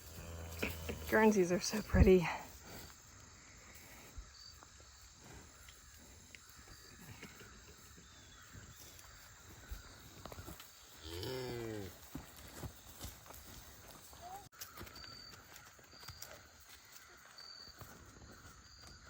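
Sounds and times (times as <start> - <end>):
cow mooing: 11.0 - 12.0.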